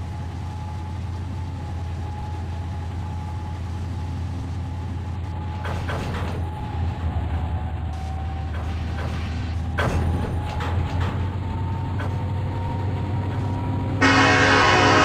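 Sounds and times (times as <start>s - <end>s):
diesel locomotive rumbling: 0.0s - 15.0s
train air horn blast: 14.0s - 15.0s.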